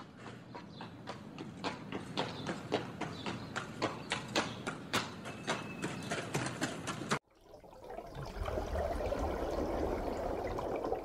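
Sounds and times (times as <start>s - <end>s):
horses moving on grass: 0.0s - 7.2s
rush of pool water: 7.3s - 11.0s.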